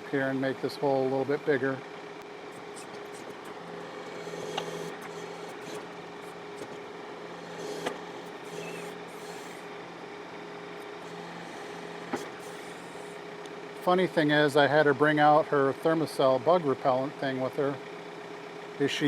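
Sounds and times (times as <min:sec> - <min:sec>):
hydraulic hum: 0:00.0 - 0:14.6
tractor diesel engine running: 0:00.1 - 0:18.7.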